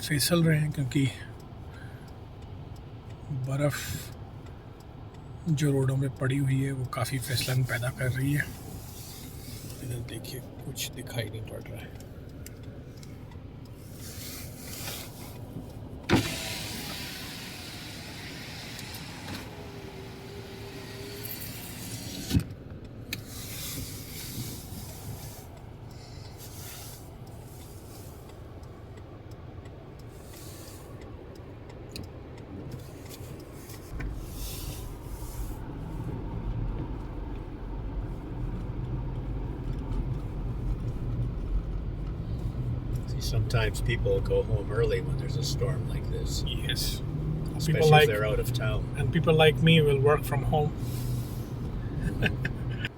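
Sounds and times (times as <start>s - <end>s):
car cabin rumble and hiss: 0.0s - 52.9s.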